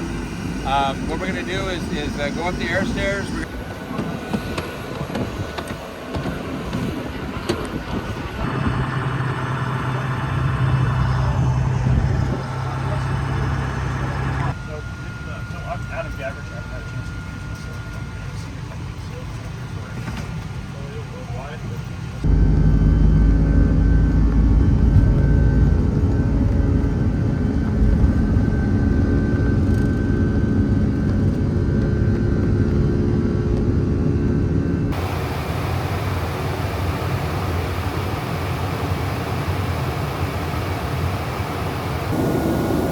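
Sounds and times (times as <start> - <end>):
aircraft engines rumbling: 0.0 - 42.9
low machine hum: 22.2 - 42.9.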